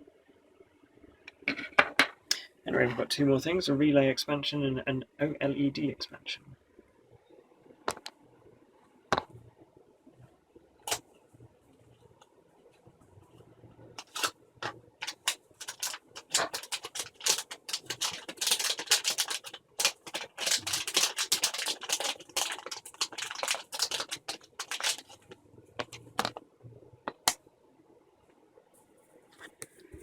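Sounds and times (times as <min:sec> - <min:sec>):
packaging crinkling and clicking: 0:14.0 - 0:26.4.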